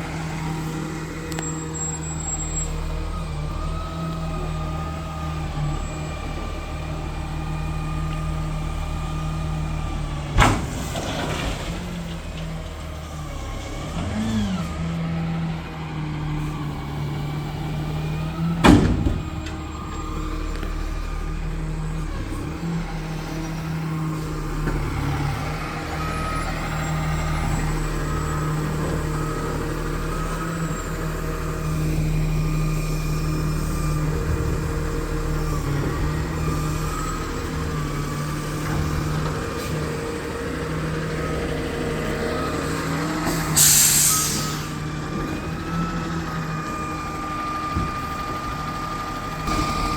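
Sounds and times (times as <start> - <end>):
garbage truck engine running: 0.0 - 49.9
reversing beeper: 49.4 - 49.9.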